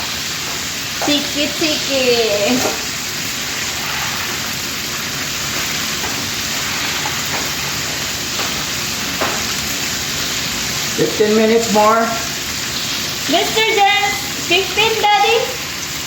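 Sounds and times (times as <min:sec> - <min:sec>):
chicken sizzling in oil: 0:00.0 - 0:16.0.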